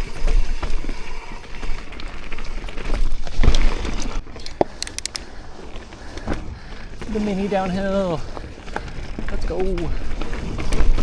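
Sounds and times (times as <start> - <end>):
bike tyres rolling over dirt: 0.0 - 11.0
bike rattling and knocking: 1.6 - 11.0
sharp clicks: 4.4 - 5.3.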